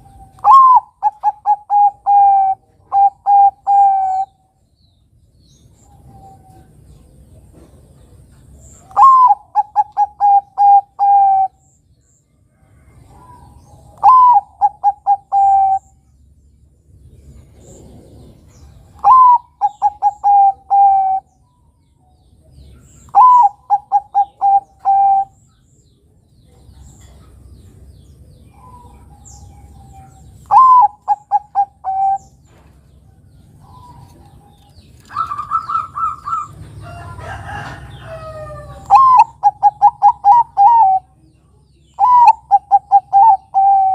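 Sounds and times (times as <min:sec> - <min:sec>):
dove cooing: 0:00.0 - 0:04.4, 0:08.8 - 0:11.6, 0:13.0 - 0:16.0, 0:17.5 - 0:21.4, 0:22.9 - 0:25.4, 0:28.5 - 0:32.6, 0:33.5 - 0:41.2, 0:42.0 - 0:43.9.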